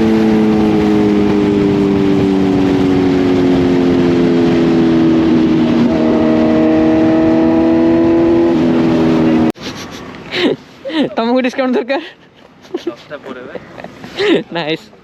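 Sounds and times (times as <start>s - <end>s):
motorcycle engine running loud: 0.0s - 9.6s.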